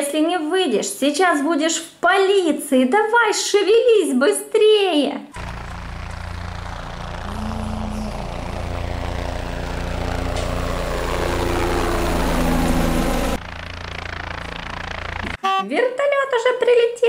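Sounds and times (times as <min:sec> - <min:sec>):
helicopter rotor and engine: 0:05.4 - 0:15.4.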